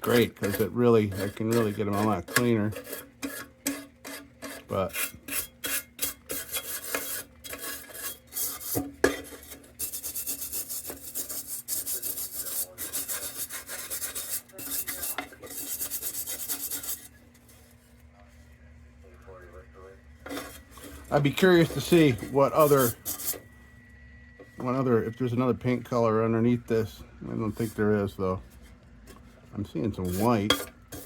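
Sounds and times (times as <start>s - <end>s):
scrubbing painted metal: 0.0s - 17.8s, 20.2s - 23.4s, 30.0s - 31.0s.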